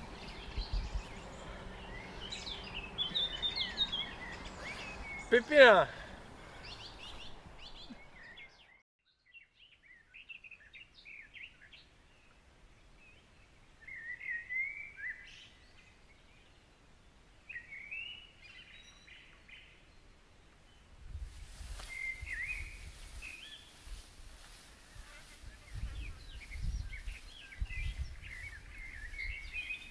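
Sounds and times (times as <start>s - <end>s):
songbirds singing: 0.0s - 21.0s, 21.6s - 29.9s.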